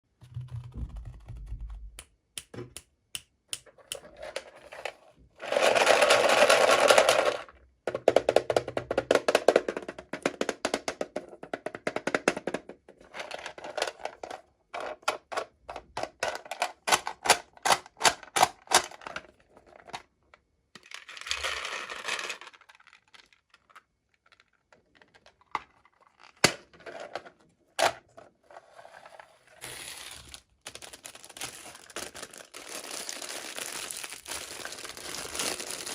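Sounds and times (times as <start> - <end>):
packaging rustling and tearing: 29.6 - 35.9.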